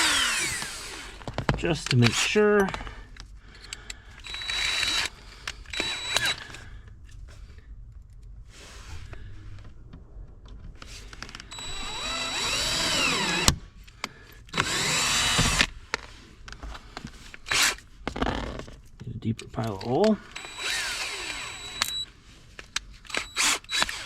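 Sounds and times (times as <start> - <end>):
power drill boring: 0.0 - 1.3, 4.2 - 6.6, 11.5 - 13.6, 14.5 - 15.7, 17.5 - 18.3, 20.3 - 22.0, 23.1 - 24.0.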